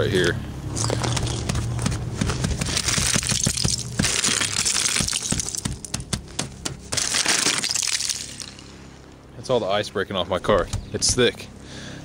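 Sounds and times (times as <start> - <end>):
ice cracking and crunching: 0.7 - 6.1, 6.9 - 8.8.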